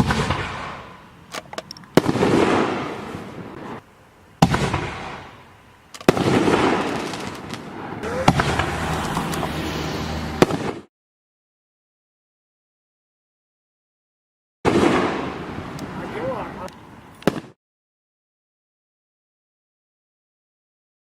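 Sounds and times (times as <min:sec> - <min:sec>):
small firework cracks: 0:00.0 - 0:03.8, 0:04.4 - 0:09.6, 0:14.7 - 0:17.6
firework shells bursting: 0:00.0 - 0:09.7.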